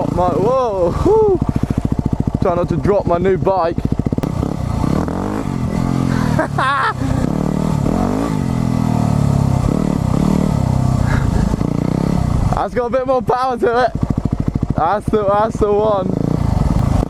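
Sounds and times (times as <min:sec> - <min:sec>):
motorbike engine revving: 0:00.0 - 0:17.0
person shouting: 0:00.4 - 0:01.5.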